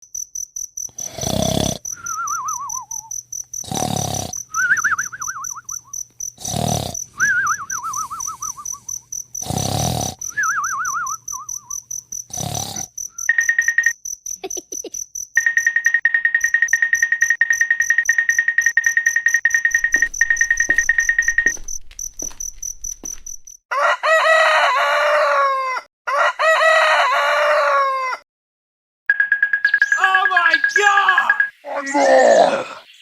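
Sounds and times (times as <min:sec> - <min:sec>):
insect trill: 0:00.0 - 0:23.6, 0:29.8 - 0:33.0
warbling falling call: 0:29.8 - 0:32.4.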